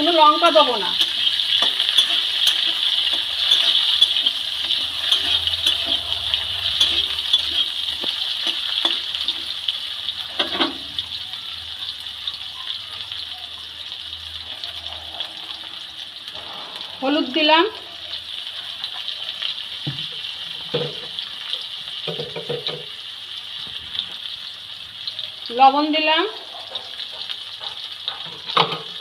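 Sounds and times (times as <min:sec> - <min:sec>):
spatula scraping metal pan: 0:00.0 - 0:09.7
vegetables sizzling in oil: 0:00.0 - 0:29.0.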